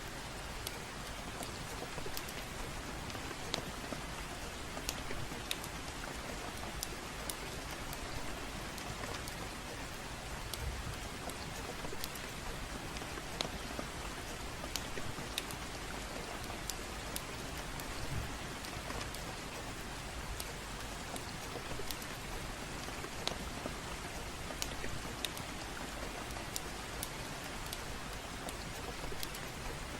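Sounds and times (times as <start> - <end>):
gentle rain: 0.0 - 29.9
wood fire crackling and popping: 10.4 - 12.4.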